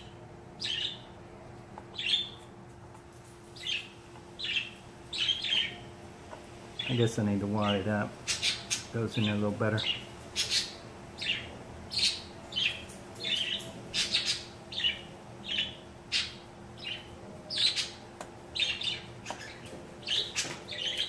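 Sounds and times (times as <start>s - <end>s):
bird squawking: 4.4s - 5.8s, 8.2s - 8.9s, 9.8s - 18.0s.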